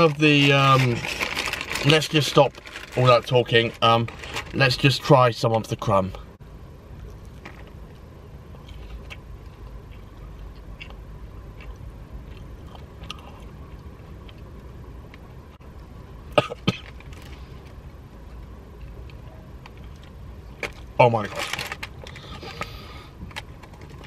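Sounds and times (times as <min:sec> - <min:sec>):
man chewing: 0:07.0 - 0:15.4
man coughing: 0:16.4 - 0:16.9.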